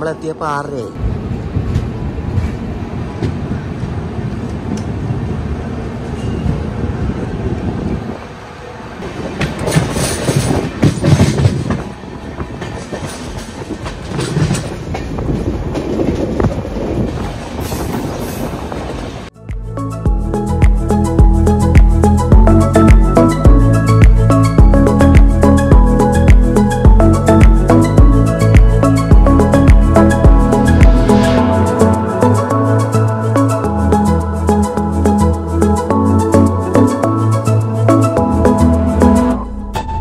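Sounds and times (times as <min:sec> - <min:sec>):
train wheels rushing on rails: 0:01.0 - 0:19.3.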